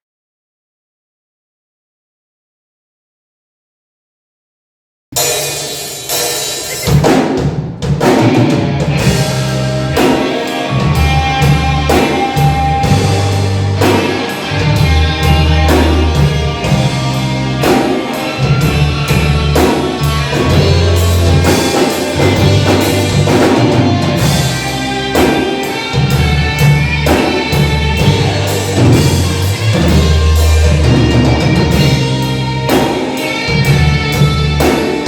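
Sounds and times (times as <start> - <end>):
drum kit beating: 5.1 - 35.0
rock band playing: 5.2 - 35.0.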